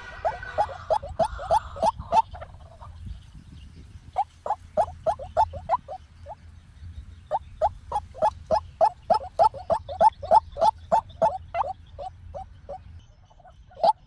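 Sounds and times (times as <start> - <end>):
waterhen calling: 0.0 - 3.0, 4.2 - 6.4, 7.3 - 14.0.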